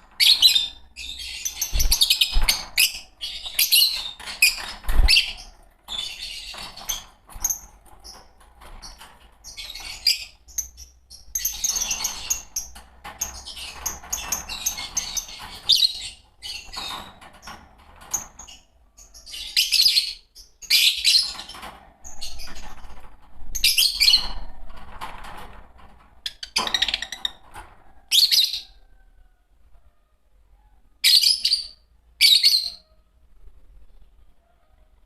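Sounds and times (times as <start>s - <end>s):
shrill bird chirps: 31.0s - 33.0s.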